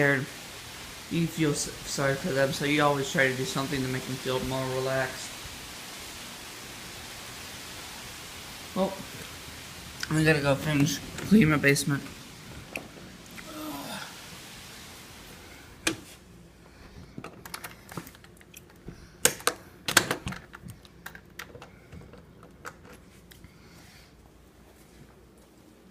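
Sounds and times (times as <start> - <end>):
faint hiss: 0.0 - 18.2, 18.8 - 25.9.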